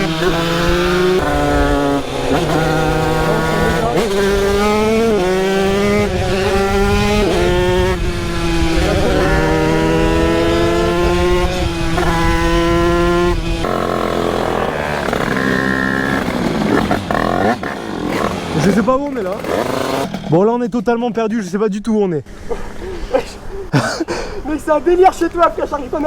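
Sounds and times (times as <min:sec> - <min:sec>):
motorbike engine changing gears: 0:00.0 - 0:20.8.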